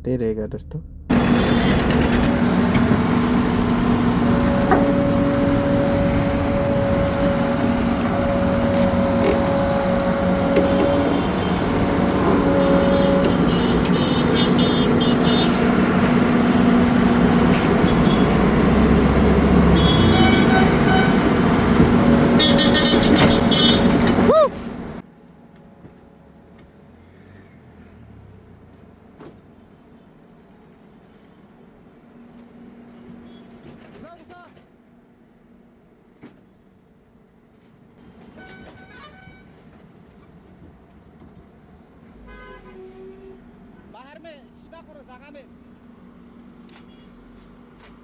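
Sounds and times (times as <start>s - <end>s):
vehicle engines running: 0.0s - 34.0s, 39.5s - 48.0s
car horns honking: 1.1s - 25.0s, 38.0s - 39.6s, 42.1s - 45.0s.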